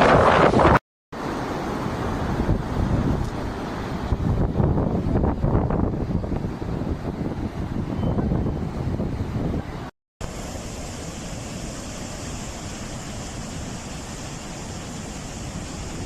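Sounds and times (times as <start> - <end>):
wind buffeting microphone: 0.0 - 0.8, 2.2 - 9.9
floodwater rushing: 10.2 - 16.0.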